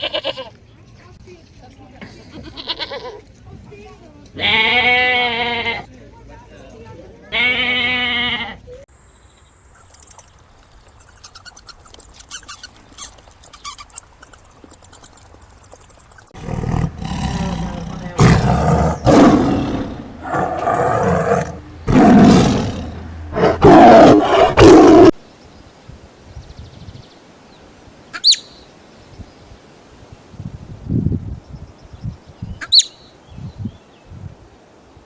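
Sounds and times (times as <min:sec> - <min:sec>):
short bleat: 0:04.4 - 0:05.8, 0:07.3 - 0:08.6
faint high chirping: 0:08.9 - 0:16.3
large animal roaring: 0:16.4 - 0:25.2.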